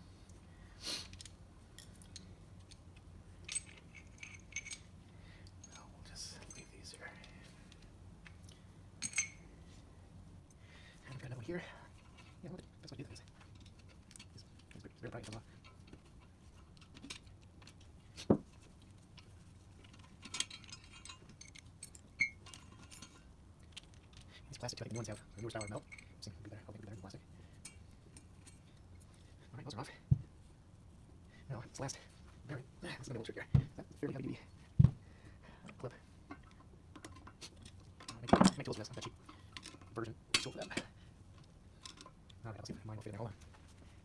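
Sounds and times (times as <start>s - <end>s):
small metal parts clicking: 1.0s - 5.8s, 7.3s - 9.4s, 12.0s - 26.2s
metal tools clinking: 3.4s - 4.9s, 5.6s - 7.4s, 9.0s - 9.5s, 11.1s - 29.2s, 36.3s - 42.2s.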